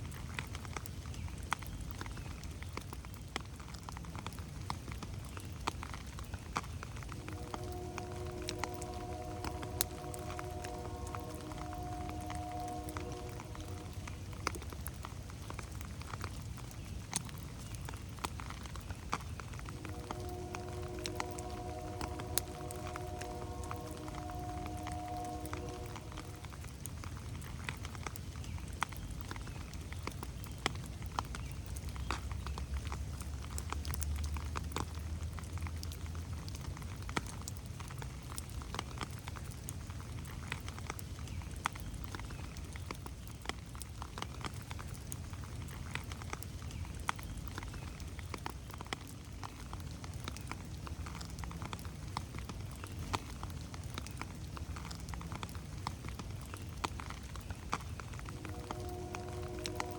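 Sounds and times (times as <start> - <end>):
rain dripping on leaves: 0.0 - 59.9
low rumble: 7.0 - 15.3, 19.5 - 27.4, 58.1 - 59.9.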